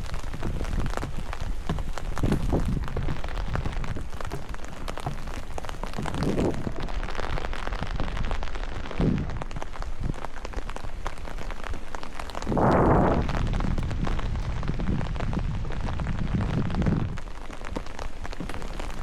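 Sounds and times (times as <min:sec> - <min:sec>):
heavy muffled thuds: 0:00.0 - 0:08.3
rain drops ticking: 0:00.0 - 0:19.0
low rumble: 0:12.4 - 0:17.2.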